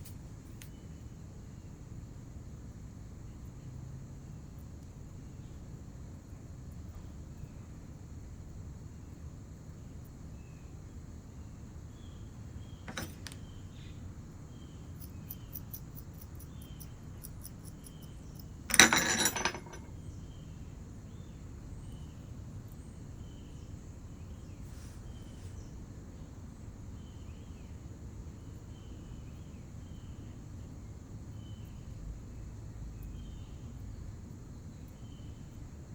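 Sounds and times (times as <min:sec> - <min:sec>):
tools clattering on table: 0:12.9 - 0:13.4, 0:18.7 - 0:19.9.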